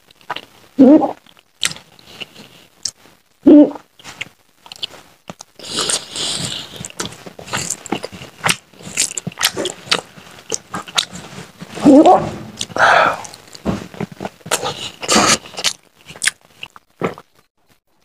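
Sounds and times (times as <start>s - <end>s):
wet chewing and lip smacking: 4.2s - 11.2s, 14.5s - 17.3s
person humming: 11.8s - 13.4s.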